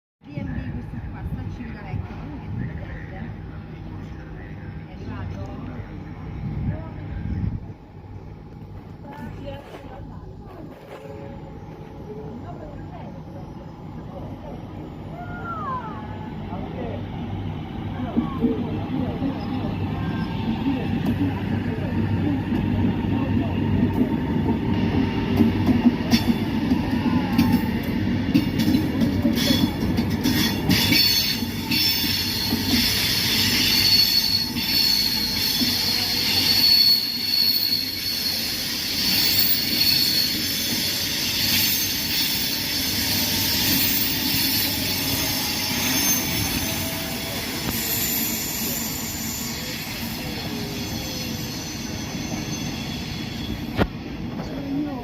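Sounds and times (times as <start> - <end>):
high wheel squeal: 24.7 - 53.9.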